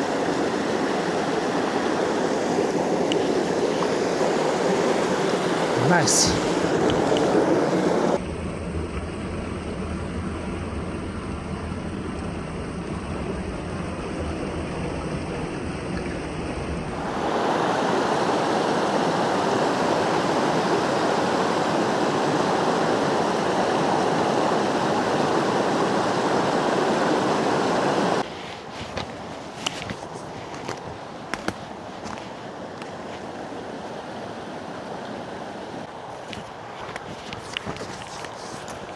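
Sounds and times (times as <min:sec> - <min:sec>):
creek water rushing: 0:00.0 - 0:08.2, 0:16.8 - 0:38.9.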